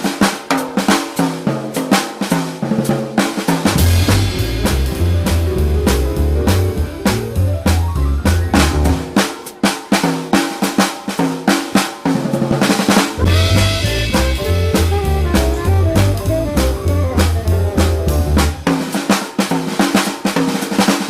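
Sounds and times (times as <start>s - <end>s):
drum kit playing: 0.0s - 21.0s
higher pitched notes: 3.8s - 9.0s, 13.2s - 18.6s
low bass line: 3.8s - 9.0s, 13.2s - 18.6s.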